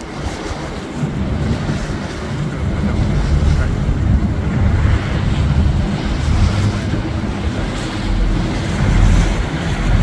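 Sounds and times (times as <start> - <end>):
boat engine running: 0.0 - 10.0
water washing past: 0.0 - 10.0
wind buffeting microphone: 0.0 - 10.0.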